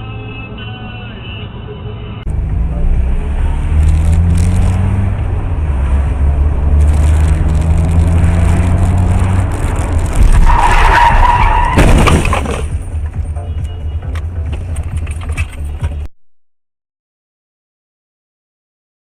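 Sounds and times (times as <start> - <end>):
road rumble: 0.0 - 16.1
car engine accelerating: 2.3 - 11.7.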